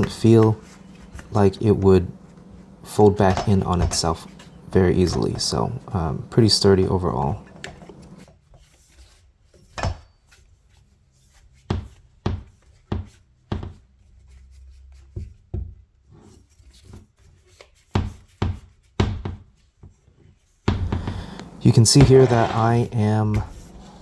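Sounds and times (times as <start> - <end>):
faint rustling: 0.0 - 8.2, 20.8 - 24.0.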